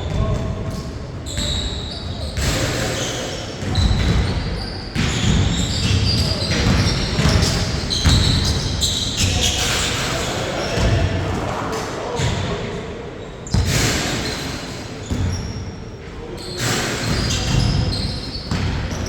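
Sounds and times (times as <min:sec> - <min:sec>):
sneakers squeaking: 0:00.0 - 0:11.2, 0:13.2 - 0:19.0
basketball bouncing on court: 0:03.6 - 0:09.3, 0:13.5 - 0:14.2, 0:15.0 - 0:15.5, 0:16.6 - 0:19.0.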